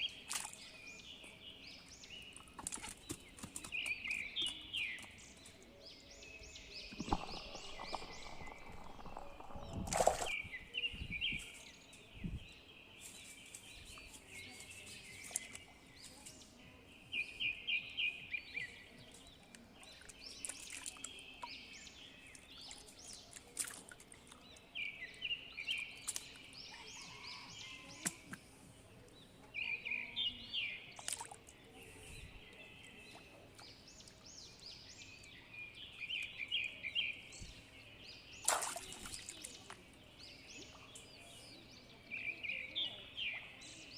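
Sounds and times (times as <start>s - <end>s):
birds singing trilled phrases: 6.8s - 11.6s.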